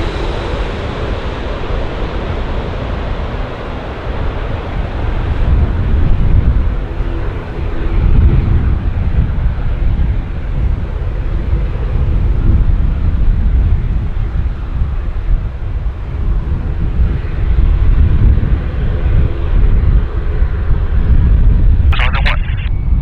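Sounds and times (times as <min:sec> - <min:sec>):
airliner engines rumbling: 0:00.0 - 0:23.0
faint steady hum: 0:22.0 - 0:22.7.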